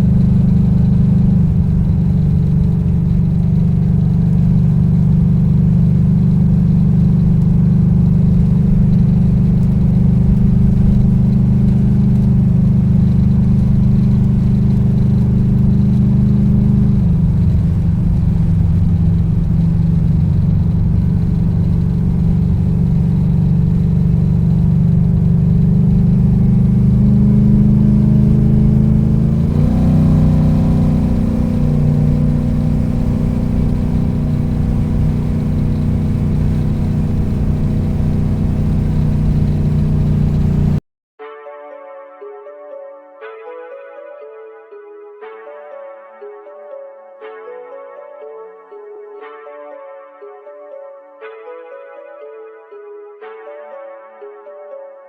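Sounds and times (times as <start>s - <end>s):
car engine and exhaust running: 0.0s - 40.8s.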